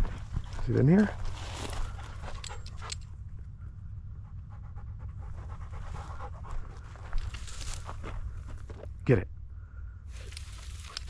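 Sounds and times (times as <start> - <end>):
dog panting: 1.6 - 3.0, 4.1 - 8.2.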